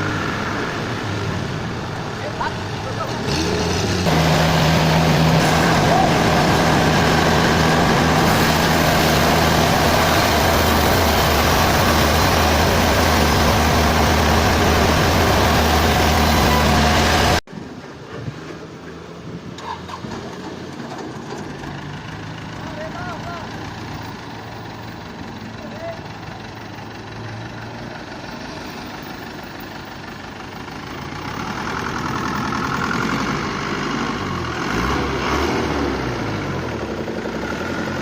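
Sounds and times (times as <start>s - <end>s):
engine hum: 0.0s - 38.0s
sawmill machinery running: 3.1s - 17.4s.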